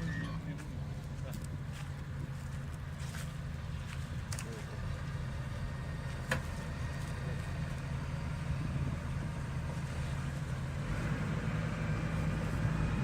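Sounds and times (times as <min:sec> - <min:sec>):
tractor diesel engine droning: 0:00.0 - 0:13.0.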